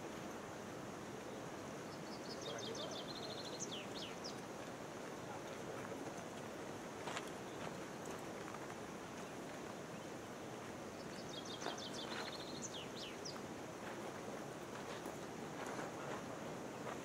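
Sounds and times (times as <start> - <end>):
steady noisy outdoor background: 0.0 - 17.0
small bird singing: 1.3 - 4.4, 10.9 - 13.4.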